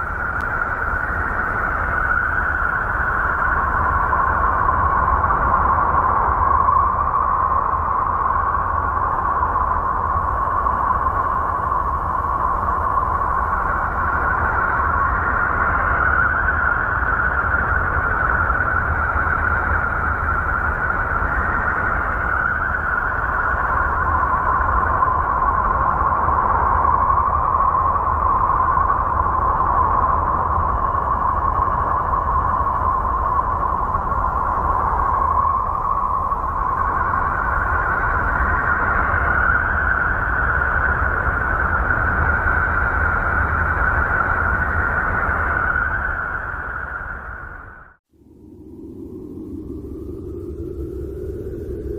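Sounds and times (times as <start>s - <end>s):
whistling tone: 0.0s - 48.0s.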